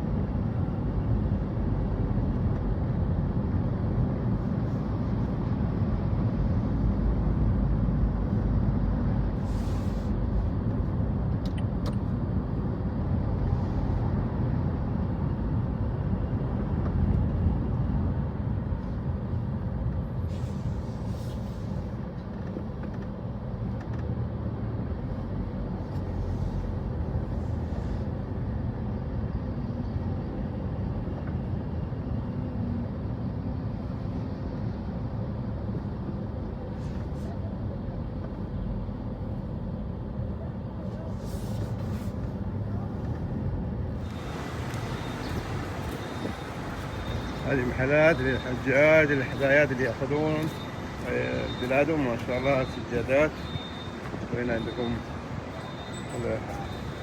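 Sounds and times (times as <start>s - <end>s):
rumble of passing traffic: 0.0s - 57.0s
short hisses: 9.4s - 10.1s.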